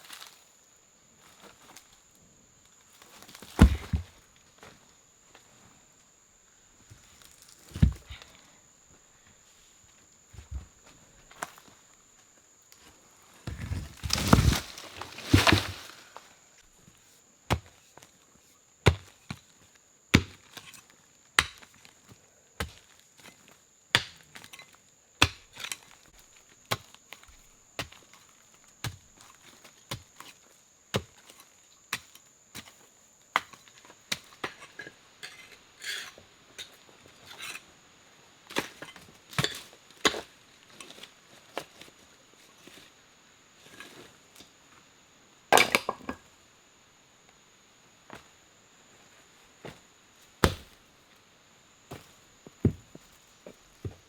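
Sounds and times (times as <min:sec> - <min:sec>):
wood chopping strokes: 0:13.5 - 0:16.2, 0:50.4 - 0:50.8.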